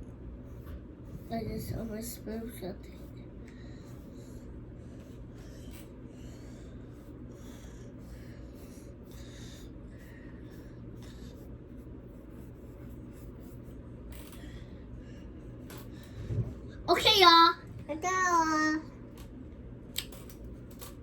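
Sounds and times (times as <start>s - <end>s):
steady low hum: 0.0s - 21.0s
paintbrushes scratching on pumpkins: 0.4s - 14.0s.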